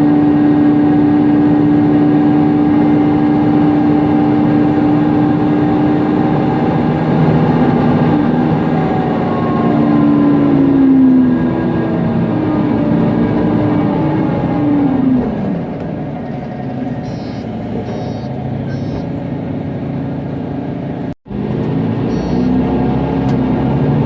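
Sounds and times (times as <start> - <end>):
bus engine whine: 0.0 - 24.0.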